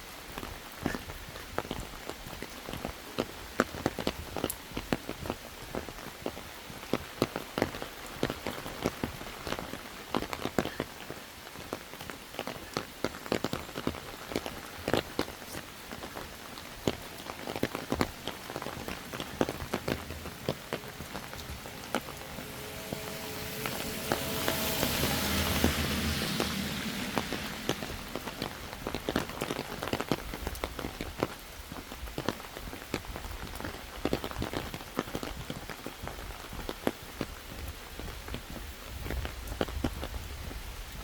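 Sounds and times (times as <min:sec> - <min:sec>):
steady rushing noise: 0:13.4 - 0:31.3
faint hum: 0:17.8 - 0:29.8.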